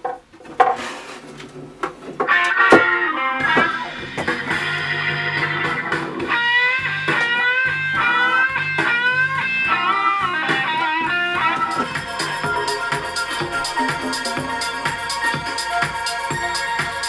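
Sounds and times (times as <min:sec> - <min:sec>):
blues-rock electric guitar: 0:02.3 - 0:14.6
steady bass line: 0:03.5 - 0:17.0.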